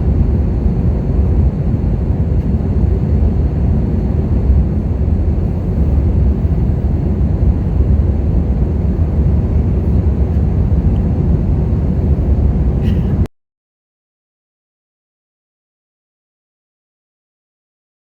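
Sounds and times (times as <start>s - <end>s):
jet engines and airflow in cabin: 0.0s - 13.3s.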